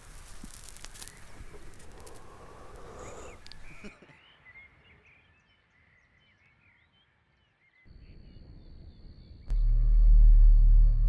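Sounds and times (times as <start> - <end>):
distant birds chirping: 0.9 - 9.7.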